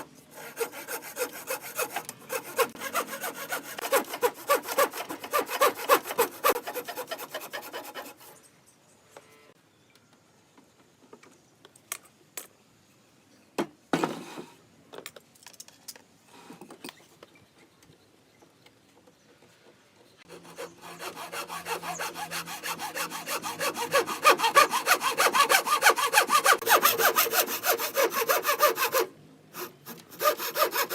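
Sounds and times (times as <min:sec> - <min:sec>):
hand saw cutting wood: 0:00.0 - 0:08.4, 0:20.3 - 0:30.9.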